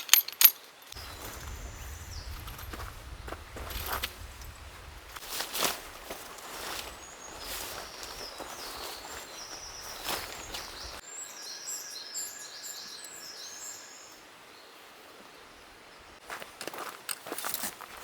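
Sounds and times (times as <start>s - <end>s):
rustling: 0.0s - 11.0s
forest ambience: 0.0s - 18.0s
small birds chirping: 0.6s - 16.2s.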